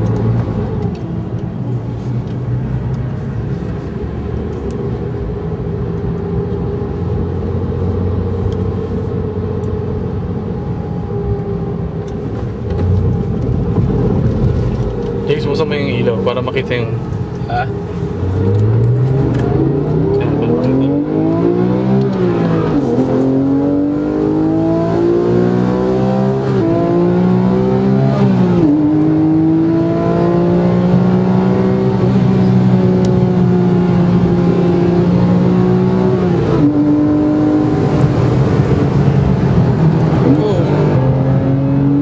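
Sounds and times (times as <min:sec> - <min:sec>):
car engine accelerating hard: 0:11.4 - 0:42.0.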